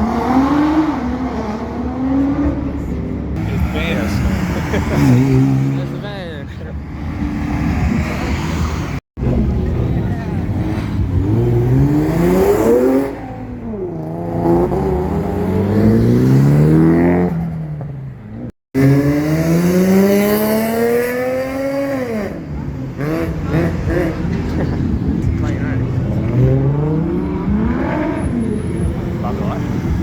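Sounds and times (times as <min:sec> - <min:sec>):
car engine accelerating: 0:07.0 - 0:30.0.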